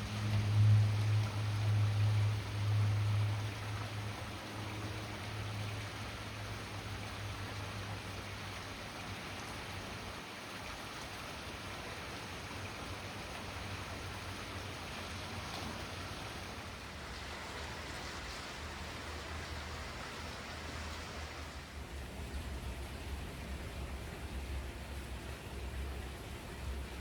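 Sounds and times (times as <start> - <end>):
steady rain: 0.0 - 27.0.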